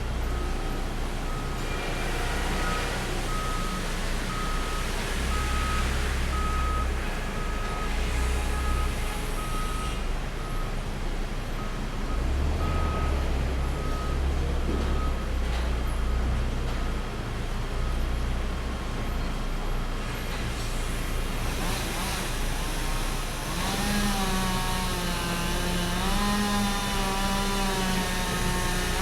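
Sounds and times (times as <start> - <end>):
engine and machinery din: 0.0 - 29.0
back-up alarm beeping: 2.2 - 10.6.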